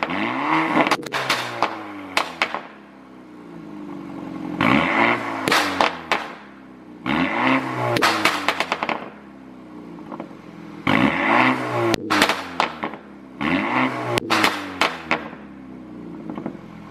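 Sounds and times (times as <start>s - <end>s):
exhaust pops and crackles: 0.0s - 2.9s, 4.6s - 6.6s, 7.9s - 9.3s, 10.0s - 11.2s, 11.8s - 15.5s, 16.2s - 16.7s
car engine revving: 0.0s - 16.9s.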